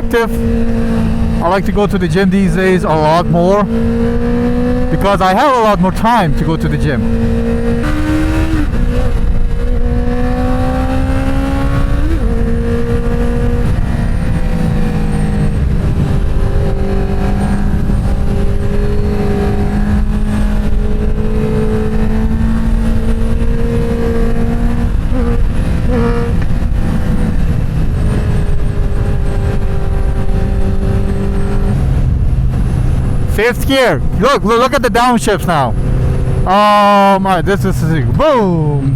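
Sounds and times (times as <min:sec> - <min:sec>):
motorcycle engine running: 0:00.0 - 0:02.1, 0:07.0 - 0:33.4
wind rumble: 0:07.0 - 0:33.3.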